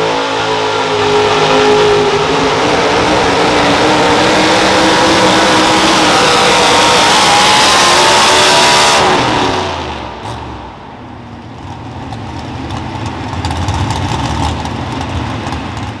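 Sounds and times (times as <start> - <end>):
low engine rumble: 0.0 - 7.2, 9.4 - 16.0
truck engine at full throttle: 0.0 - 16.0.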